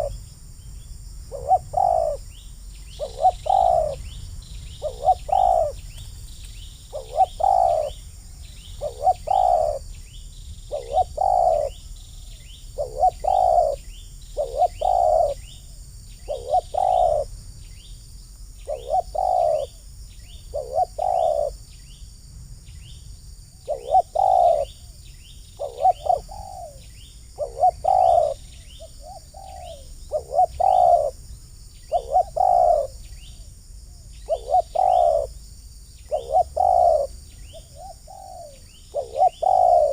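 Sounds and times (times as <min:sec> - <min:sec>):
doves cooing: 0:00.0 - 0:00.2, 0:01.3 - 0:06.1, 0:06.8 - 0:10.0, 0:10.7 - 0:17.3, 0:18.6 - 0:19.8, 0:20.4 - 0:21.6, 0:23.6 - 0:24.9, 0:25.5 - 0:31.2, 0:31.9 - 0:33.4, 0:34.2 - 0:35.4, 0:36.0 - 0:39.9
faint high bird chirps: 0:00.0 - 0:18.0, 0:18.6 - 0:22.1, 0:22.7 - 0:33.5, 0:34.1 - 0:39.9
high insect hum: 0:00.0 - 0:39.9.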